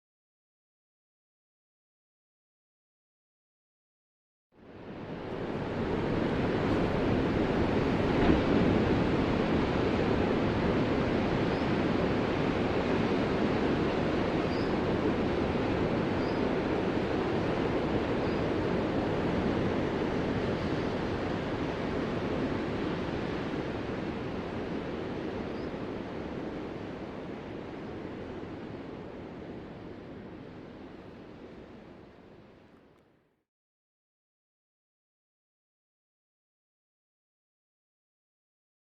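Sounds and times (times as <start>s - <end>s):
ocean surf washing: 4.7s - 32.5s.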